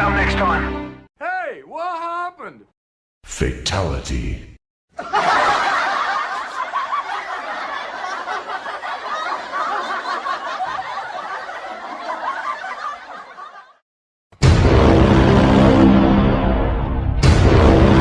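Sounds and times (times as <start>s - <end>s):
crowd laughing: 4.9s - 13.8s.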